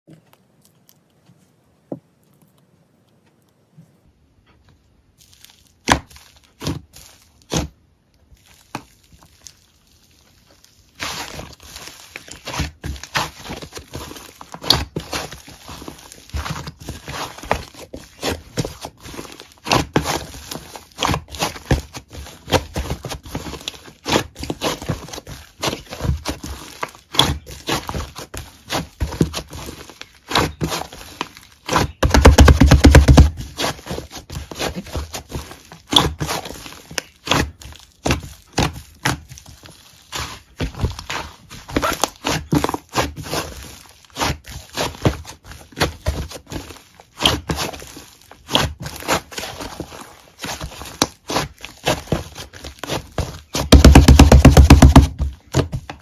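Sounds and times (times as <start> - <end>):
rapid crinkling: 8.2 - 56.0.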